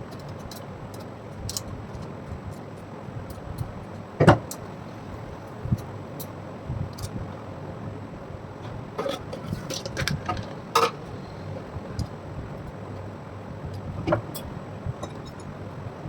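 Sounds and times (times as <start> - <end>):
low steady hum: 0.0 - 16.0
metal tools clinking: 9.0 - 11.1.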